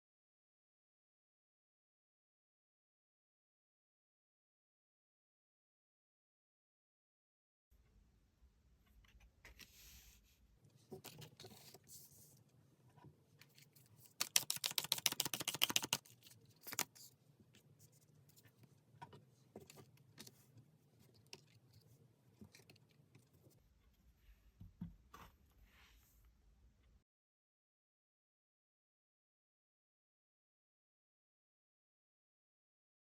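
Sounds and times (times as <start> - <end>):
cards being shuffled: 13.5 - 17.1.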